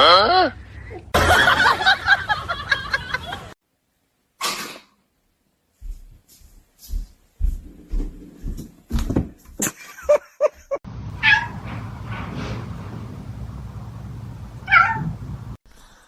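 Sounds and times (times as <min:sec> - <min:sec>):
cat meowing: 0:11.2 - 0:11.6, 0:14.6 - 0:15.2.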